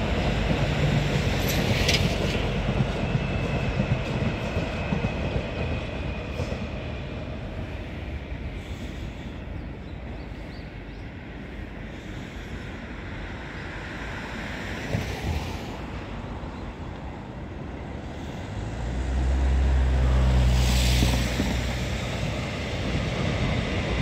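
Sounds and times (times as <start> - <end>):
electric train rumbling on tracks: 0.0 - 24.0.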